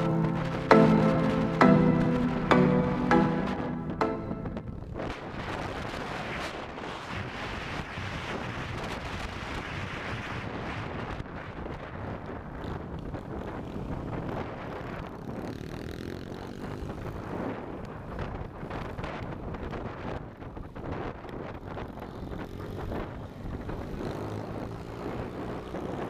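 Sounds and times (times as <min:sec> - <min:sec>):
wind on microphone: 0:04.6 - 0:15.9, 0:16.5 - 0:26.0
motorcycle engine running: 0:07.9 - 0:26.0.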